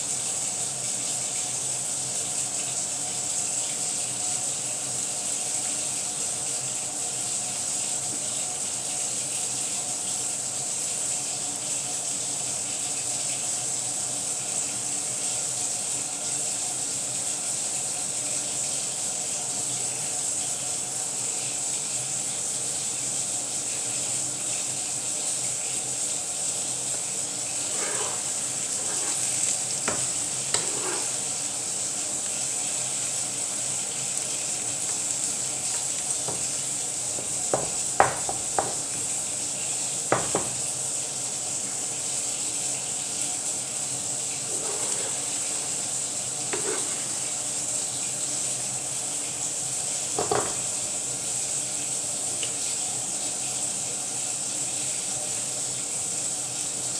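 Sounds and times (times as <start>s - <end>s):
omelette sizzling in a pan: 0.0s - 56.9s
pan knocks: 27.7s - 31.2s, 36.2s - 39.3s, 40.1s - 40.7s, 50.2s - 50.8s.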